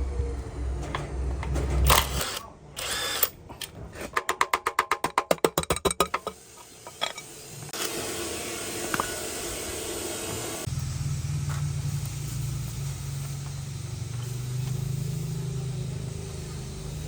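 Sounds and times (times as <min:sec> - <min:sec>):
tool humming: 0:00.0 - 0:03.7.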